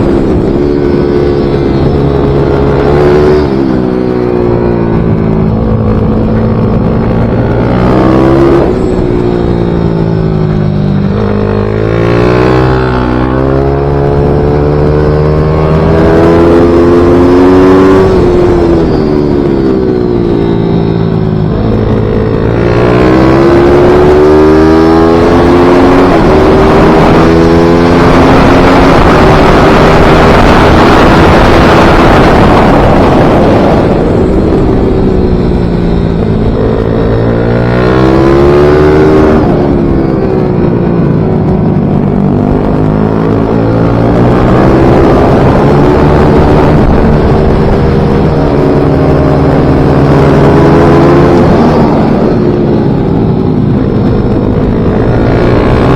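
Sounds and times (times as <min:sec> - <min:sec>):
pit bike engine revving: 0:00.0 - 0:40.2.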